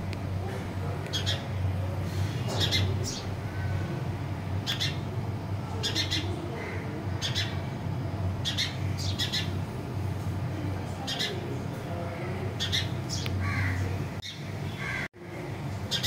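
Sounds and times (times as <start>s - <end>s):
steady low hum: 0.0s - 16.0s
small birds chirping: 1.0s - 1.6s, 2.2s - 3.9s, 4.6s - 5.1s, 5.7s - 7.7s, 8.4s - 9.6s, 11.0s - 11.5s, 12.2s - 15.1s.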